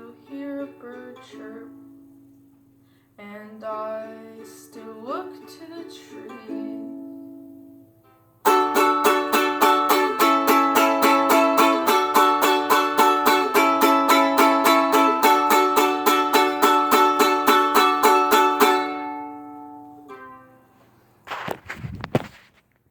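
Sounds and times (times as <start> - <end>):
string instrument strumming chords: 3.7 - 21.2.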